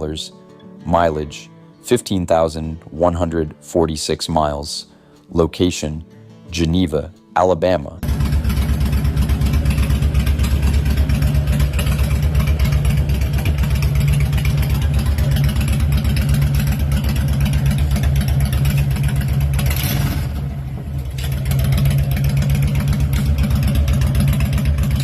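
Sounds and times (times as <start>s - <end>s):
motorcycle engine rumbling: 8.0s - 25.0s.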